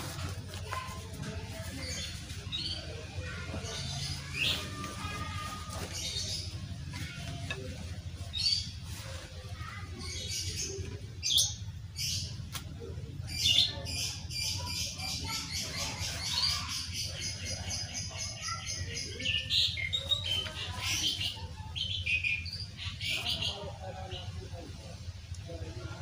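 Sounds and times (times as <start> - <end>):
small birds chirping and trilling: 0.0 - 26.0.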